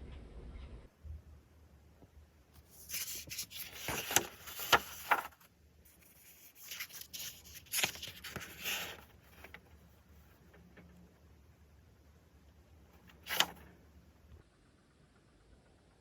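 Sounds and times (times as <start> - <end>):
rubbing and scraping handling noise: 2.6 - 11.0.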